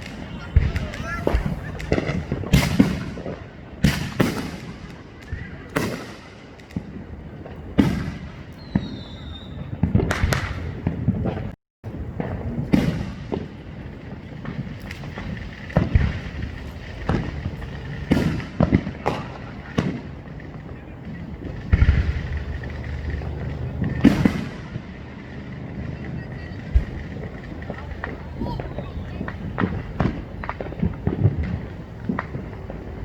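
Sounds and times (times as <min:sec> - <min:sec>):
high falling firework whistle: 0:00.0 - 0:03.3, 0:08.5 - 0:10.5
fireworks banging: 0:00.0 - 0:33.0
fireworks crackling pops: 0:00.0 - 0:33.0.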